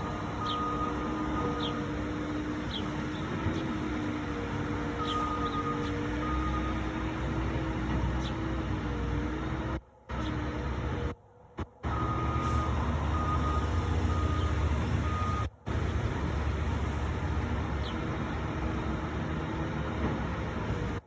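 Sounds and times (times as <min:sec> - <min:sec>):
truck reversing alarm beeping: 0:00.0 - 0:07.7, 0:11.8 - 0:17.2
truck engine rumble: 0:00.0 - 0:21.0.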